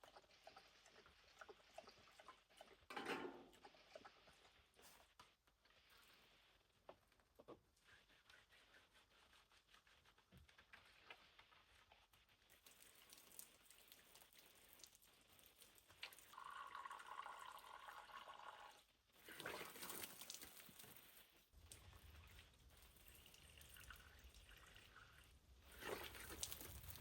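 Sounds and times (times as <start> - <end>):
water trickling and dripping: 12.5 - 27.0
flowing water: 21.6 - 27.0.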